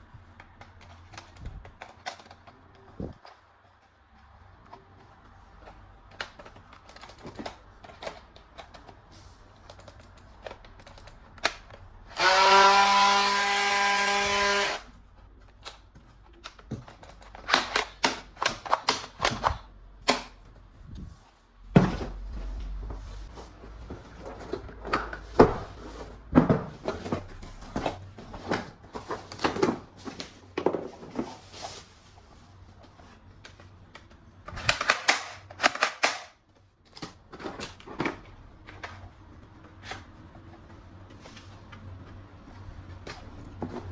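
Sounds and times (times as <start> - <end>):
plastic toy guns clicking: 34.5 - 36.4.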